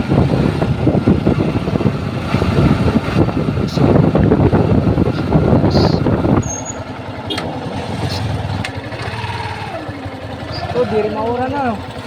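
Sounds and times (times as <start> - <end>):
wind noise on microphone: 0.0 - 8.6
motorcycle engine: 0.0 - 12.0.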